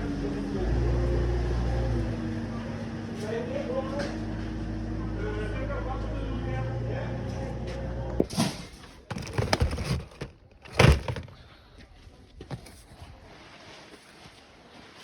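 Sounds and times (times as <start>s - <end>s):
low engine hum: 0.0s - 8.3s.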